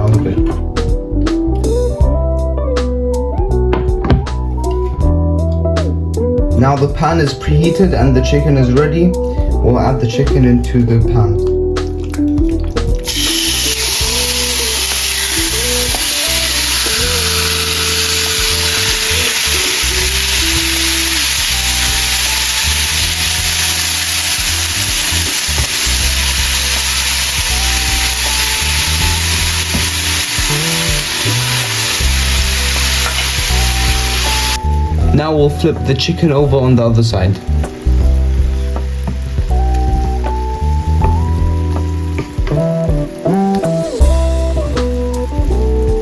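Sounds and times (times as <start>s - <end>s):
chicken sizzling in oil: 13.0s - 34.9s.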